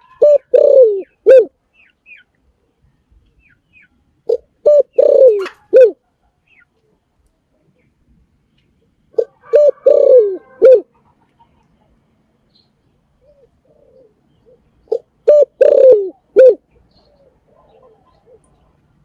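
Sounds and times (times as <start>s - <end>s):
dove cooing: 0.0s - 1.6s, 4.3s - 6.1s, 9.1s - 11.3s, 13.1s - 18.8s.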